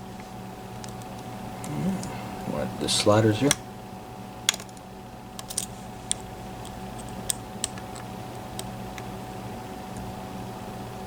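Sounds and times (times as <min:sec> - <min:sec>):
lock pick clicking: 0:04.5 - 0:04.8, 0:05.4 - 0:09.1.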